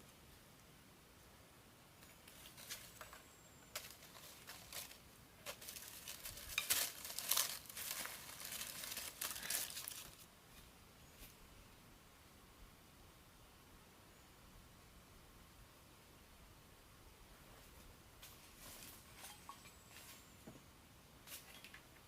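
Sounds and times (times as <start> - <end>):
dry crackling and rustling: 2.0 - 11.4.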